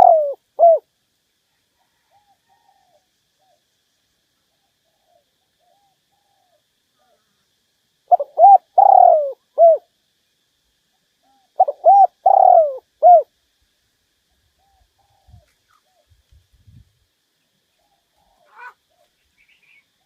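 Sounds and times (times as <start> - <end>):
dove cooing: 0.0 - 0.9, 8.1 - 9.9, 11.2 - 13.3, 14.6 - 16.2, 17.8 - 20.0.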